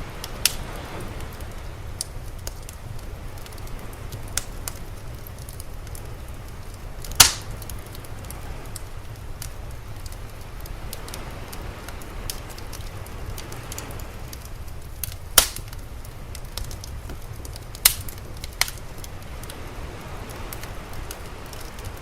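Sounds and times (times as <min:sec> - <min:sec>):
sea waves rumbling: 0:00.0 - 0:22.0
wood fire crackling: 0:00.0 - 0:22.0
loud sharp pops: 0:07.1 - 0:07.5, 0:15.4 - 0:15.8.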